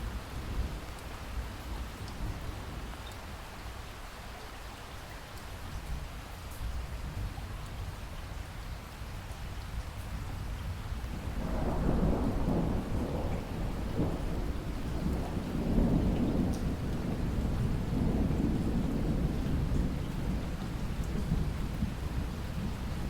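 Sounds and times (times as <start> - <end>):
steady rain hiss: 0.0 - 23.0
thunder rumbling: 11.1 - 23.0.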